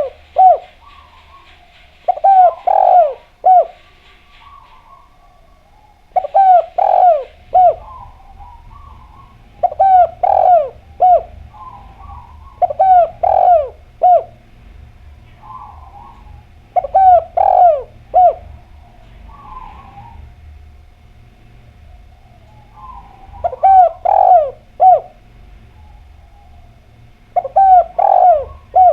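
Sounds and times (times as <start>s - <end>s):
dove cooing: 0.0s - 28.9s
soft murmured dove notes: 0.0s - 28.9s.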